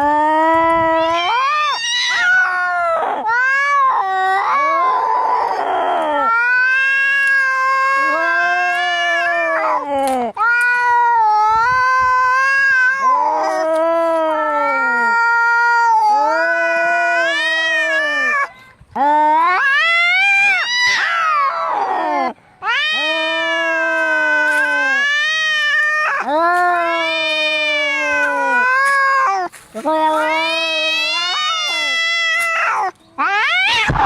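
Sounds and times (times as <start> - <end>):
cats yowling: 0.0 - 34.0.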